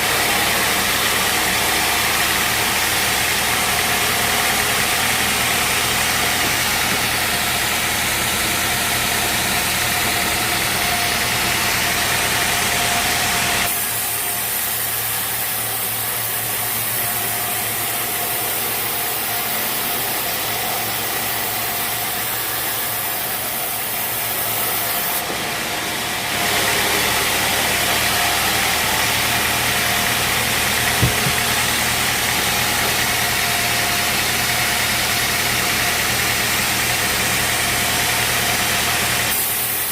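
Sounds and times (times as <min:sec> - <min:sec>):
bandsaw sawmill engine drone: 0:00.0 - 0:39.9
sharp knock: 0:31.0 - 0:31.5.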